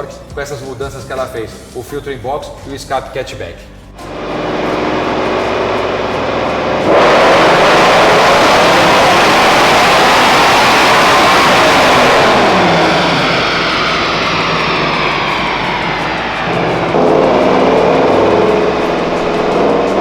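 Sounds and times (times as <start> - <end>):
car engine at full throttle: 4.0 - 20.0.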